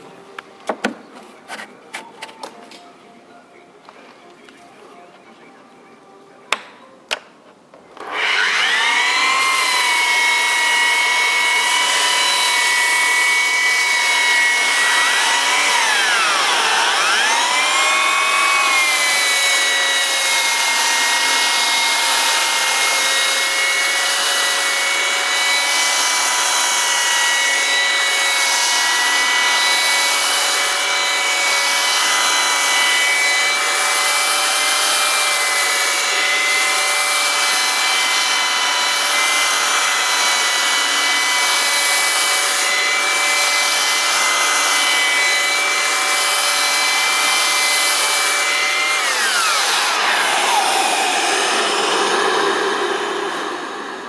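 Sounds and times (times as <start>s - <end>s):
dust extractor motor whine: 8.0s - 54.0s.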